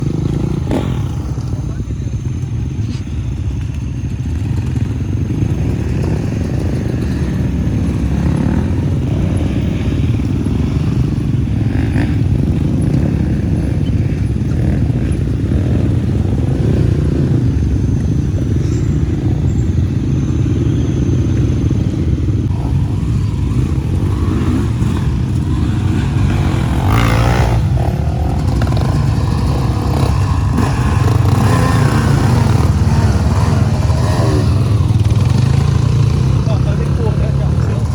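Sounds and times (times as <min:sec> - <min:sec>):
motorcycle engine rumbling: 0:00.0 - 0:37.9.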